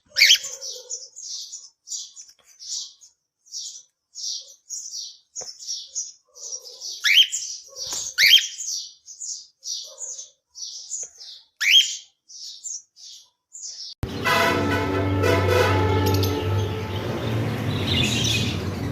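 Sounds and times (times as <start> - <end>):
parrot chirping: 11.6 - 12.1.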